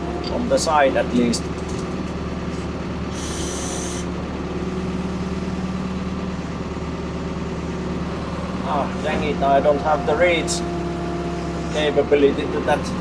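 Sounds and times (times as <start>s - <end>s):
excavator engine running: 0.0s - 13.0s
hydraulic hiss: 3.1s - 4.2s.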